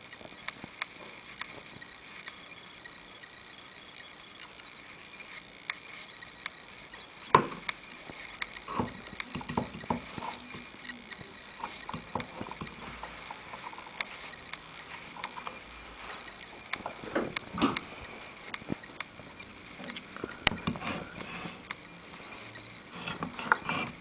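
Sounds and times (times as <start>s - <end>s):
hard objects clicking and clunking: 7.3s - 21.9s, 22.5s - 24.0s.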